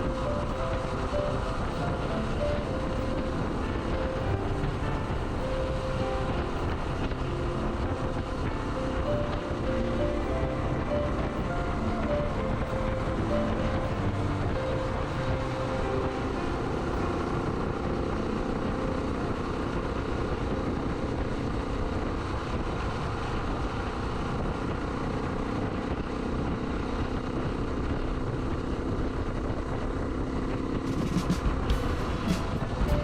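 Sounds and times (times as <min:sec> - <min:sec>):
wind and road noise: 0:00.0 - 0:33.0.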